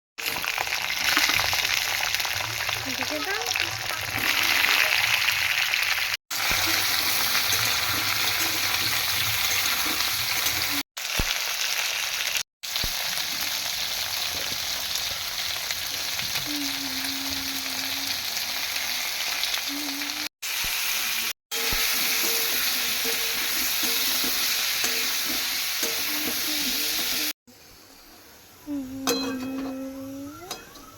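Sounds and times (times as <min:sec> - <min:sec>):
food frying in hot oil: 0:00.2 - 0:27.4
stirring in a pan: 0:06.3 - 0:10.8, 0:21.5 - 0:27.3.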